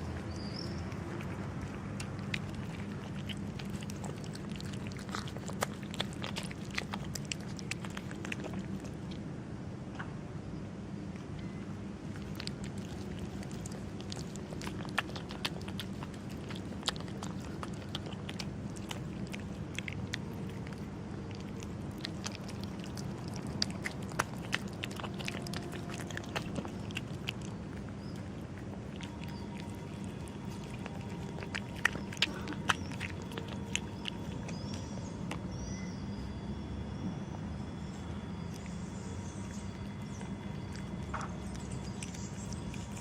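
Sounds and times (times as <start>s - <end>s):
cat crunching food: 0.0s - 9.3s, 11.4s - 35.6s, 37.7s - 43.0s
low background hum: 0.0s - 43.0s.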